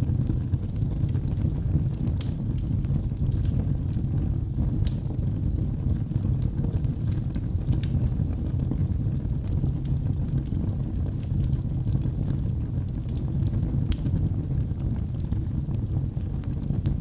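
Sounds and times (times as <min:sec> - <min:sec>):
fire rumbling: 0:00.0 - 0:17.0
wood crackling and popping: 0:00.0 - 0:17.0.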